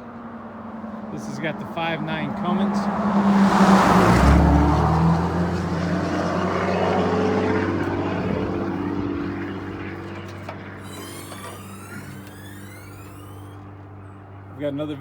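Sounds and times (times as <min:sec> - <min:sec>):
diesel truck engine idling: 0:04.9 - 0:14.0.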